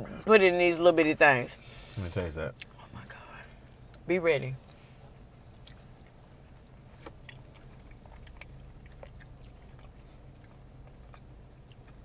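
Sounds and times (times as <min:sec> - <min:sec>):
low steady hum: 0:00.0 - 0:12.0
quiet chewing: 0:05.5 - 0:06.2, 0:06.9 - 0:12.0.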